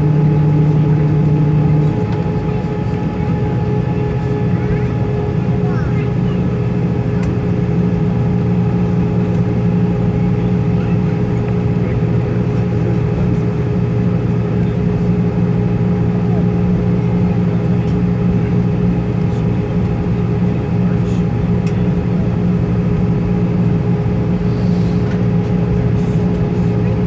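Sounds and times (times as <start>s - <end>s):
airplane cabin engine drone: 0.0s - 27.0s
steady whine: 0.0s - 27.0s.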